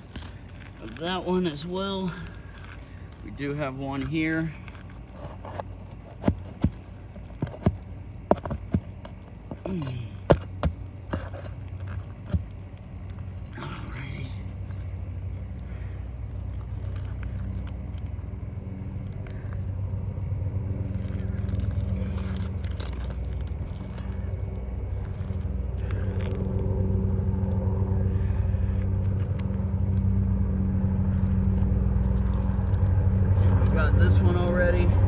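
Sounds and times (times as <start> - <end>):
tools clicking and scraping: 0.0 - 13.6, 20.8 - 26.6
engine hum: 0.0 - 35.0.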